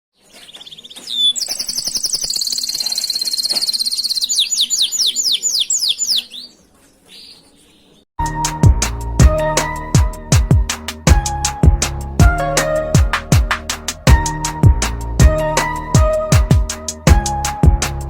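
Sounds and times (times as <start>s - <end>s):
canary singing trills: 0.2s - 8.0s
music with drum beat: 8.3s - 18.0s.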